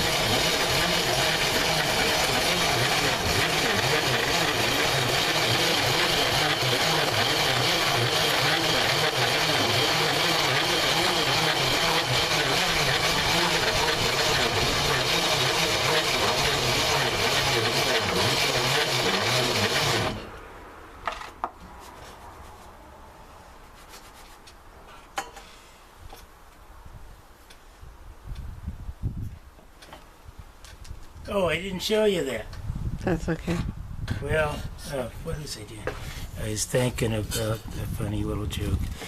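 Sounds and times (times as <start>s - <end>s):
corn grinder grinding: 0.0s - 20.3s.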